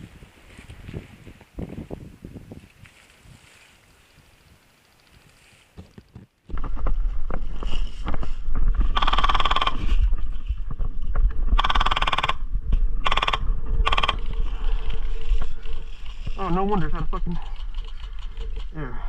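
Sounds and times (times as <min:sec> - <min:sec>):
wind buffeting microphone: 0:00.0 - 0:03.6, 0:06.5 - 0:19.0
airsoft gun full-auto bursts: 0:09.0 - 0:09.8, 0:11.6 - 0:12.4, 0:13.1 - 0:14.2.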